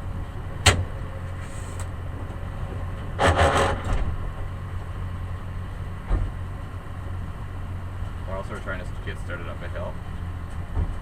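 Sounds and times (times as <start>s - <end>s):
short clatter: 3.2s - 4.1s.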